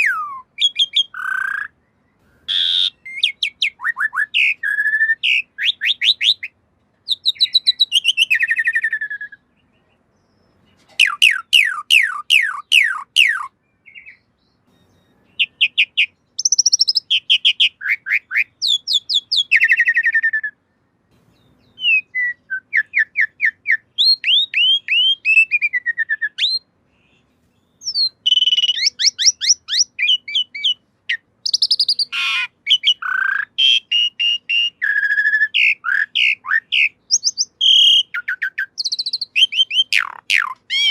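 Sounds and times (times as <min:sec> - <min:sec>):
harsh bird call: 0:00.0 - 0:40.9
starling singing whistled notes: 0:00.0 - 0:40.9.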